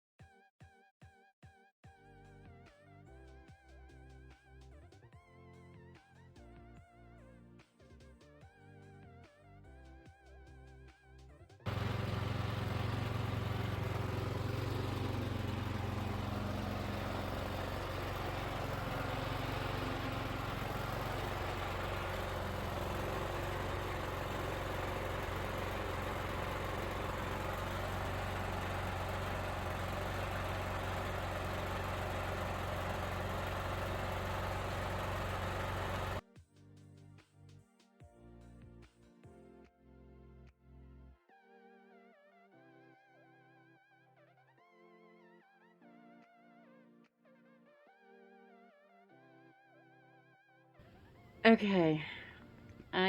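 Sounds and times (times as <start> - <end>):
engine-like hum and hiss: 11.7 - 36.2.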